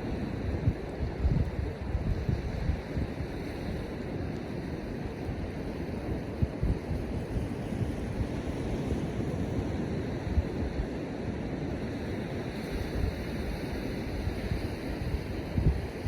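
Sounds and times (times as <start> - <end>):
surf washing on beach: 0.0 - 16.0
wind buffeting microphone: 0.0 - 16.0.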